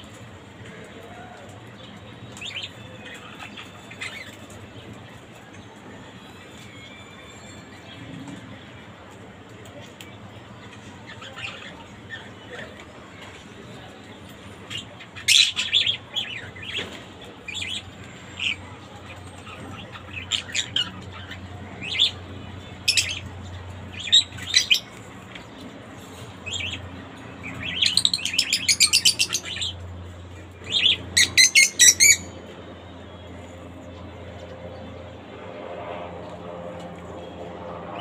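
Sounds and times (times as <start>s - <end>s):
bird chirping: 27.4s - 29.8s, 30.6s - 32.3s.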